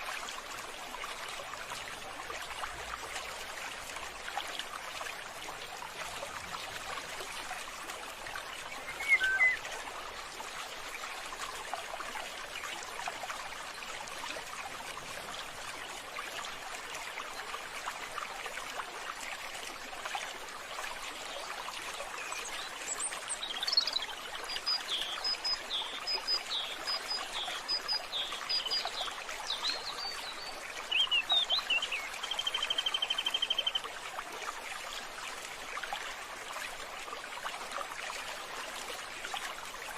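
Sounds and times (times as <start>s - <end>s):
trickling water: 0.0s - 39.9s
birds chirping: 8.7s - 9.6s.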